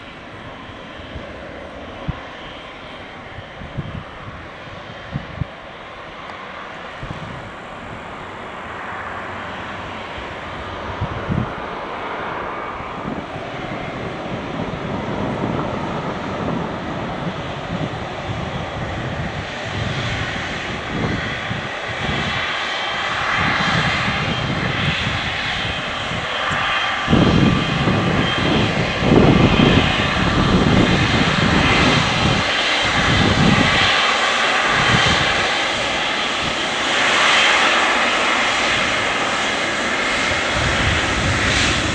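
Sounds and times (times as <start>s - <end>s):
jet engines rumbling: 0.0s - 41.9s.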